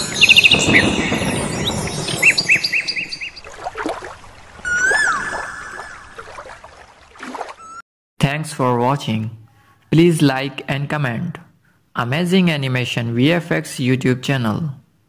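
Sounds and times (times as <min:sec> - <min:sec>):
whistled bird call: 0:00.0 - 0:03.5, 0:04.6 - 0:06.3
rushing noise: 0:00.0 - 0:03.6
birds chirping: 0:00.0 - 0:06.8.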